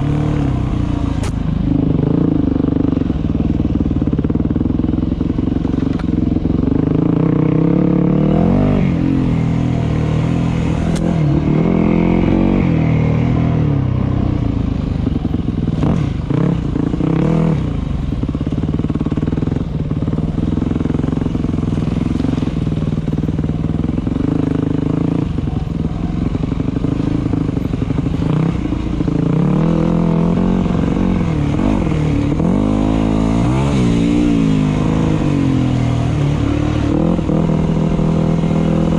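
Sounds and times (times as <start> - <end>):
dirt bike engine revving: 6.8 - 13.7, 26.9 - 38.9.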